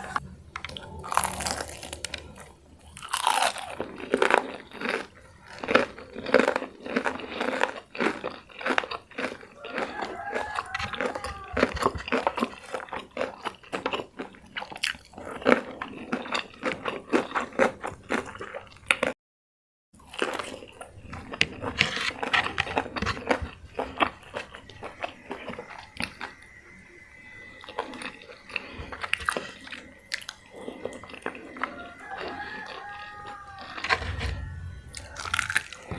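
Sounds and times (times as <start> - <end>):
crunching and chewing fried chicken: 0.0 - 19.2, 20.0 - 35.9.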